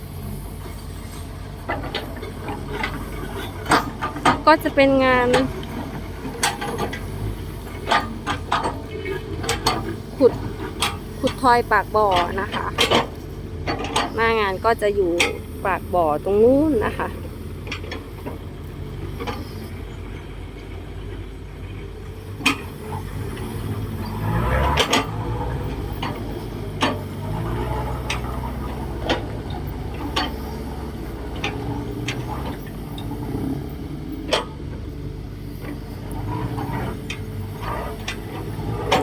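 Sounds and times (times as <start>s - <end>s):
excavator diesel engine: 0.0s - 39.0s
metallic clanks: 22.2s - 39.0s.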